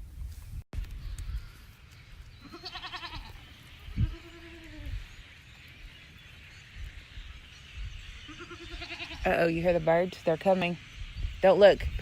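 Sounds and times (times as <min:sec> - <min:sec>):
goats bleating: 0:02.4 - 0:03.4, 0:04.0 - 0:04.9, 0:08.3 - 0:09.3.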